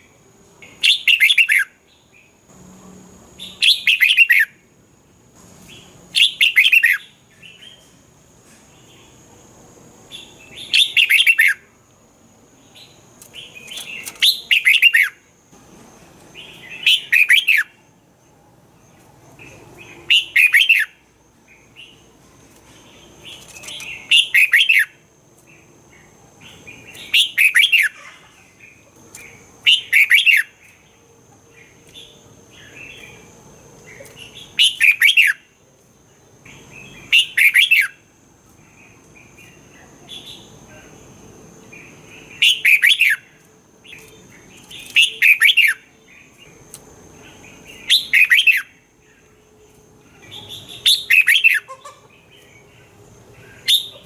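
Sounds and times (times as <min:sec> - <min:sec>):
bird singing whistled phrases: 0:00.8 - 0:01.8, 0:03.4 - 0:04.5, 0:06.2 - 0:07.1, 0:10.6 - 0:11.6, 0:14.1 - 0:15.2, 0:16.6 - 0:17.8, 0:20.1 - 0:21.0, 0:29.7 - 0:30.6, 0:42.4 - 0:43.2, 0:47.8 - 0:48.7.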